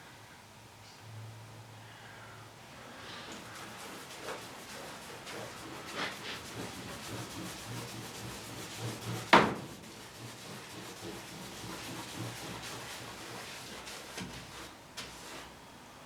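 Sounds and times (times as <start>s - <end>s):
rubbing and scraping on wood: 3.3s - 15.6s.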